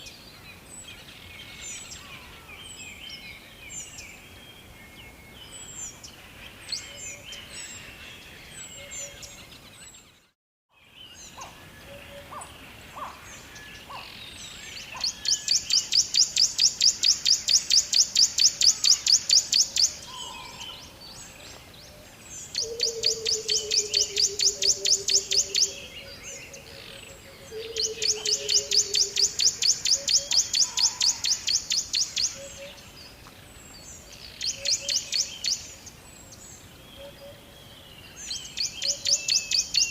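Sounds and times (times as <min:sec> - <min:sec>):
birds chirping: 0:00.0 - 0:39.9
lower pulsed bird calls: 0:10.8 - 0:39.9.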